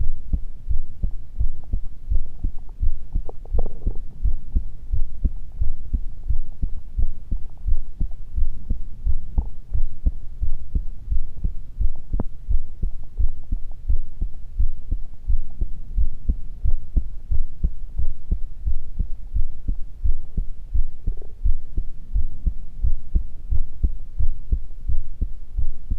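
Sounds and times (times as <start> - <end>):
human heartbeat: 0.0 - 25.9.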